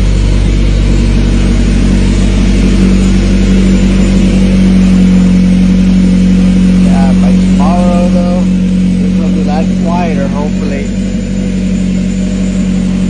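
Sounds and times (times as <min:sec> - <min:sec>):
car engine running loud exhaust: 0:00.0 - 0:13.0.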